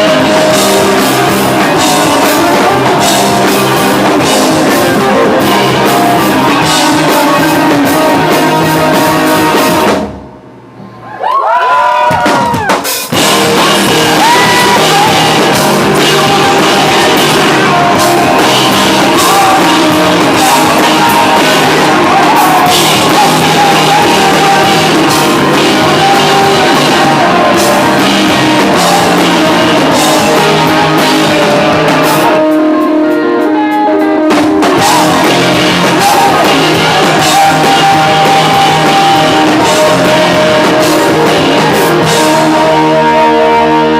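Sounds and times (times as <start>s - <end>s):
person singing: 0.0s - 10.0s, 13.1s - 43.9s
live rock band playing: 0.0s - 10.3s, 12.1s - 43.9s.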